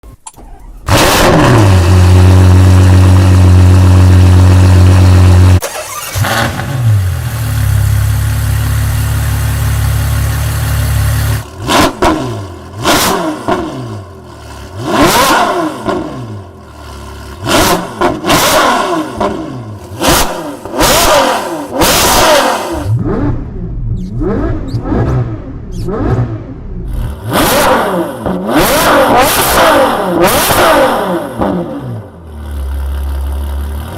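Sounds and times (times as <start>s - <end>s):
suv engine starting and idling: 0.0s - 11.6s
engine revving: 0.4s - 33.9s.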